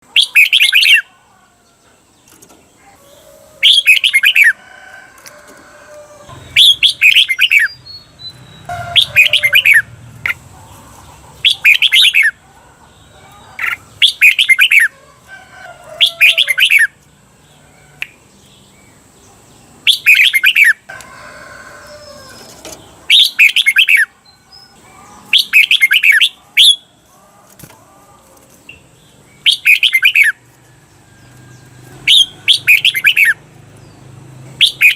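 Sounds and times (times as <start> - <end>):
bird singing rapid phrases: 0.0 - 1.1, 3.6 - 4.6, 6.3 - 15.0, 16.0 - 20.9, 22.3 - 27.6, 28.6 - 30.5, 31.2 - 34.9
faint bird warbling: 8.5 - 12.4.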